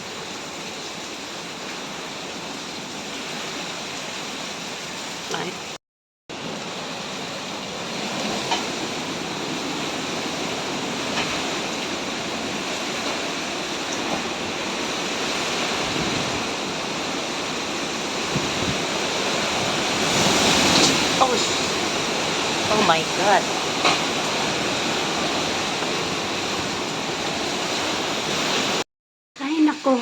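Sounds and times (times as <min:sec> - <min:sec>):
driving rain: 0:00.0 - 0:28.8
strong wind: 0:06.3 - 0:28.8.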